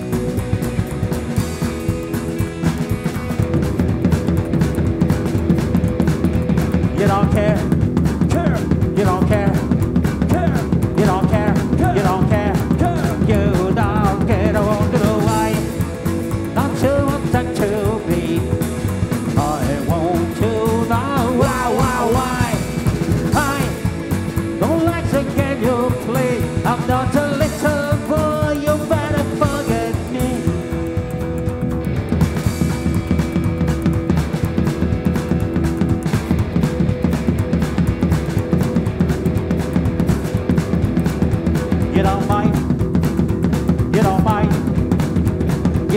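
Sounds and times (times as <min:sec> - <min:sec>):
rock band playing live: 0:00.0 - 0:45.9
steady drum beat: 0:00.0 - 0:45.9
person singing: 0:06.8 - 0:15.8, 0:16.4 - 0:23.9, 0:24.6 - 0:30.8, 0:41.8 - 0:42.8, 0:43.8 - 0:44.9.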